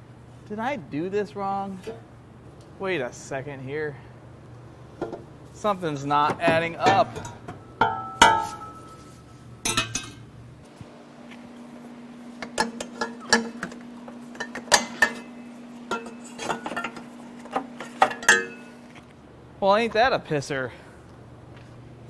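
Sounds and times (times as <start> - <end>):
faint steady hum: 10.7 - 19.2
metal parts clinking and knocking: 10.8 - 19.1.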